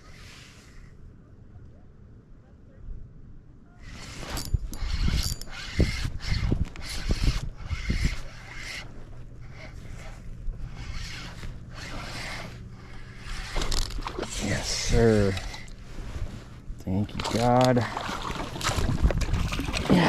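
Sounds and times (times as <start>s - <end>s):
fishing reel being cranked: 3.9s - 8.9s, 9.5s - 15.7s.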